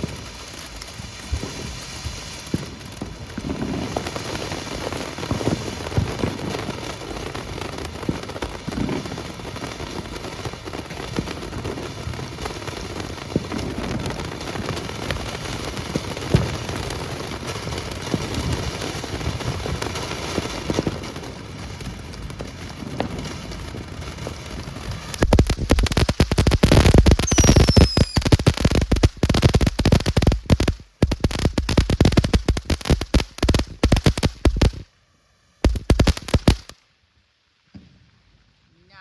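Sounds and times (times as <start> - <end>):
firework pops: 0.0 - 4.2, 5.3 - 6.7, 7.9 - 9.2, 13.3 - 14.2, 15.9 - 16.9, 18.0 - 18.7, 20.3 - 23.9, 24.6 - 34.9, 35.6 - 36.8
firework fountain hissing and crackling: 0.0 - 34.9, 35.6 - 39.0.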